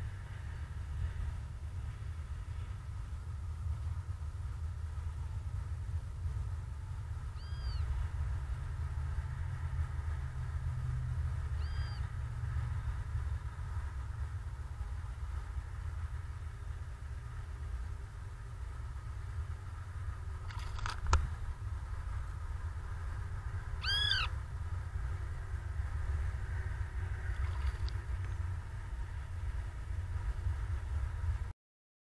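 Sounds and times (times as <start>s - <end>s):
short arched bird call: 7.4s - 7.8s, 11.6s - 12.0s, 23.8s - 24.3s.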